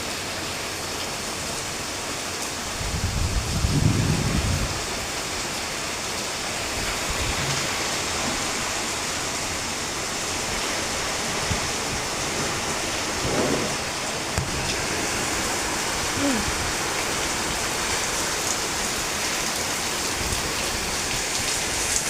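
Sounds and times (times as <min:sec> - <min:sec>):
heavy rain: 0:00.0 - 0:22.0
wind gusts buffeting microphone: 0:02.7 - 0:05.2, 0:06.5 - 0:19.3.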